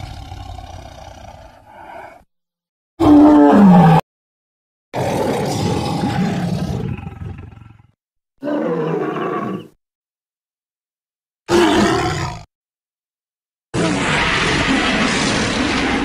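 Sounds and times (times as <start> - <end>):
big cat roaring and growling: 0.0 - 2.3, 3.0 - 4.0, 5.0 - 9.8, 11.5 - 12.5, 13.8 - 16.0.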